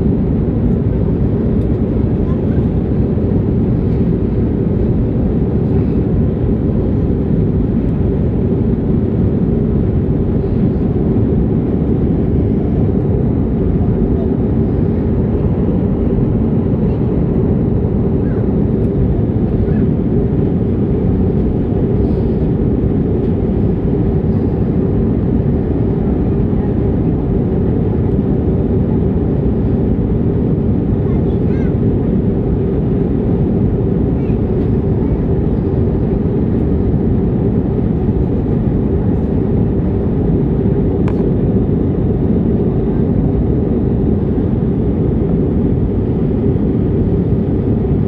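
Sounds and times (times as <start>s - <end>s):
airliner cabin rumble: 0.0s - 48.0s.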